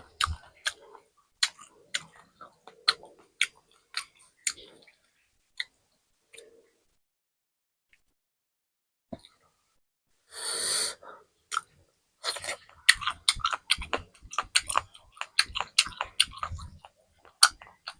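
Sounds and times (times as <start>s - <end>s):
crunchy chewing: 0.0s - 5.0s, 11.5s - 17.9s.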